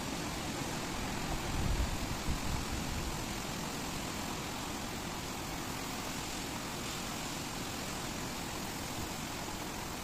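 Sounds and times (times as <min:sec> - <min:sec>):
heavy rain on pavement: 0:00.0 - 0:10.0.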